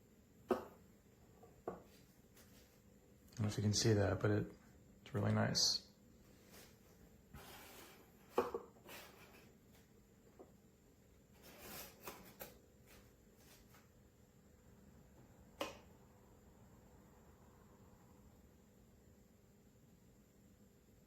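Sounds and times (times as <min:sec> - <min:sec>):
objects being handled: 0:06.3 - 0:10.6.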